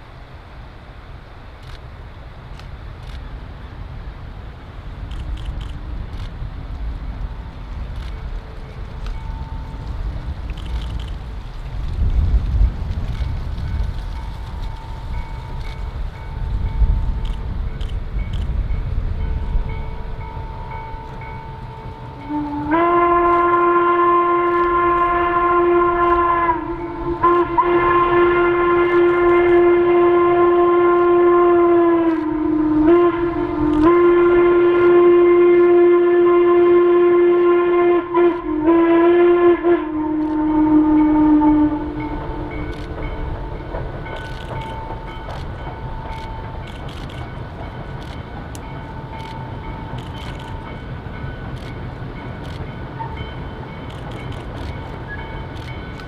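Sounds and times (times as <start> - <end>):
low rumble of train: 0.0 - 56.0
locomotive whistle blasts: 22.0 - 47.1.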